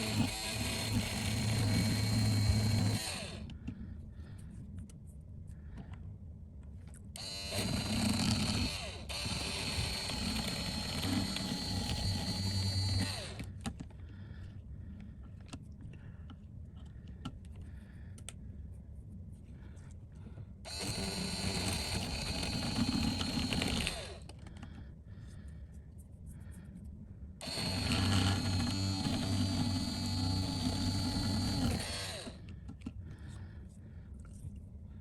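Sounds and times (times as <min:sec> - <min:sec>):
rotary power tool whining: 0:00.0 - 0:03.5, 0:07.2 - 0:13.5, 0:20.7 - 0:24.3, 0:27.4 - 0:32.5.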